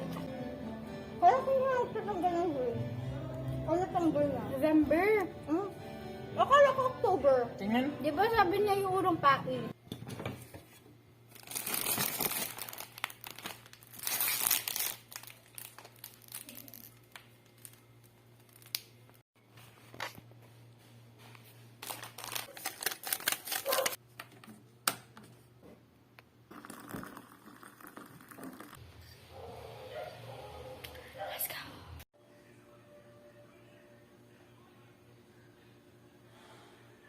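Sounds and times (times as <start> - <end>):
packaging crinkling and rustling: 11.3 - 18.9, 21.8 - 24.0.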